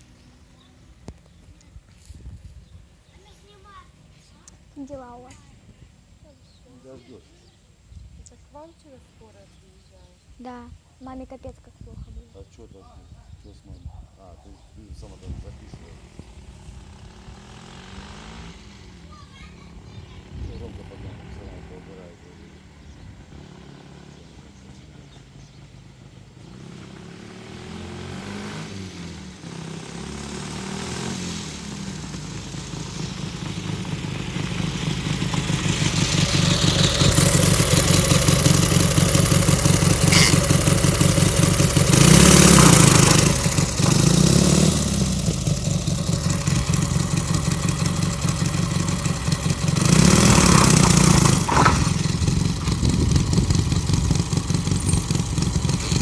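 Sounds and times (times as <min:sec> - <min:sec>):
motorcycle engine running and revving: 0:04.4 - 0:05.5, 0:15.0 - 0:56.0.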